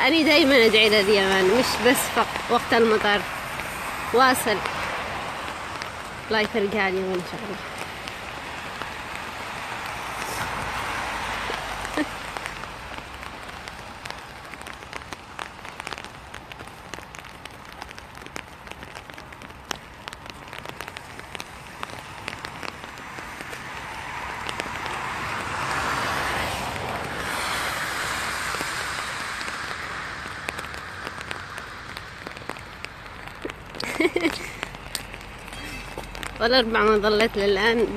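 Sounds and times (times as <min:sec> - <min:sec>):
rain pattering on umbrella: 0:00.0 - 0:37.9
rushing hiss: 0:09.7 - 0:12.7, 0:26.5 - 0:31.9.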